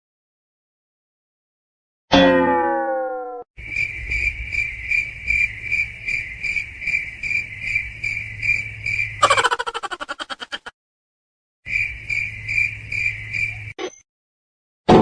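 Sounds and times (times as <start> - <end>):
crickets chirping: 3.6 - 10.6, 11.7 - 13.8.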